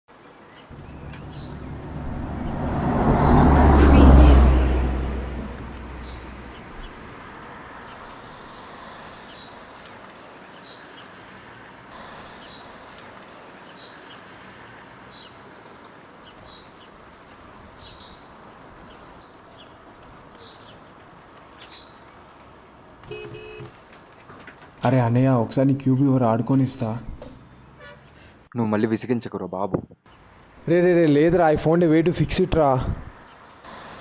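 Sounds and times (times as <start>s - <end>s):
bird chirping: 0.5s - 7.1s
vehicle passing rumble: 0.7s - 10.4s.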